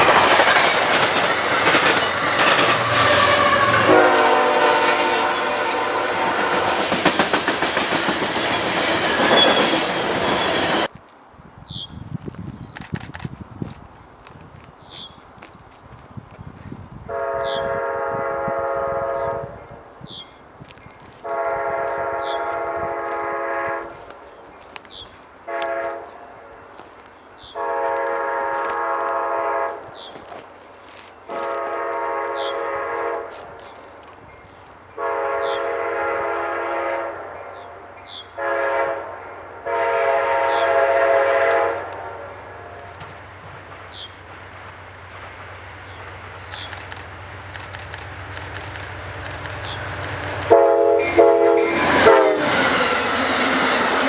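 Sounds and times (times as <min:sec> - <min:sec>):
train rumble: 0:00.0 - 0:11.0, 0:16.2 - 0:54.0
locomotive air horn: 0:02.3 - 0:06.9, 0:17.1 - 0:19.6, 0:21.2 - 0:24.1, 0:25.5 - 0:26.4, 0:27.6 - 0:29.9, 0:31.3 - 0:33.5, 0:35.0 - 0:37.4, 0:38.4 - 0:42.9, 0:50.2 - 0:54.0.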